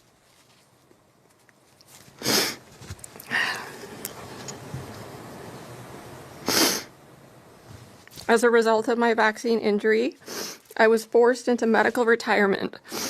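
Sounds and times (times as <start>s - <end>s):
person sniffing sharply: 2.2s - 2.6s, 6.4s - 6.9s, 10.2s - 10.7s
faint breathing: 3.2s - 4.8s.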